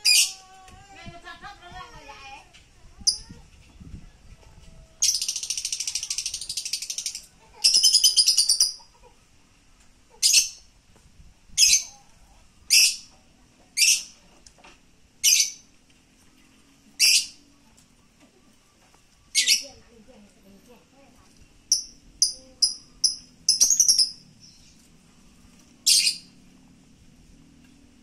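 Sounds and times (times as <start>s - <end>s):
bird rattling trills: 21.7s - 24.3s.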